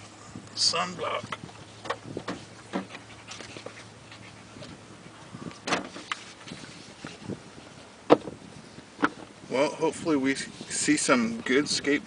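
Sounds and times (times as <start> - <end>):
small handling noises: 1.1 - 9.4
car door shutting: 1.8 - 3.1, 5.6 - 6.2, 8.0 - 8.4, 9.0 - 9.4.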